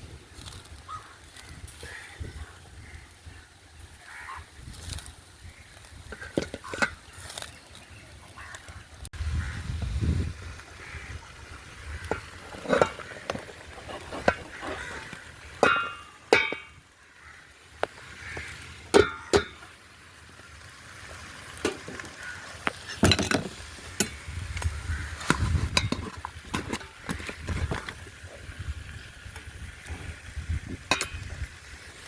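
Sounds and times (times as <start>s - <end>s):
light sizzling: 0.0s - 32.0s
utensil clinking against pot: 15.6s - 16.8s, 19.0s - 19.7s, 25.7s - 27.9s, 30.9s - 31.3s.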